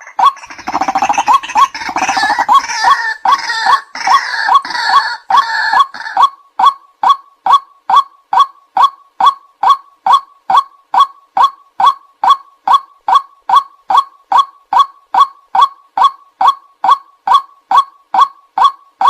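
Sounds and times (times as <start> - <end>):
rough croaking chatter: 0.0 - 6.2
waterhen calling: 0.0 - 18.8.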